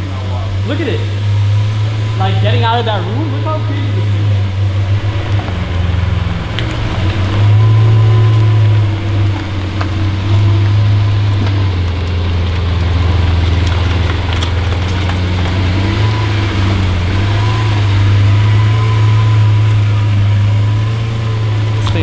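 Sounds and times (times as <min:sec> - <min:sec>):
car engine idling drone: 0:00.0 - 0:22.0.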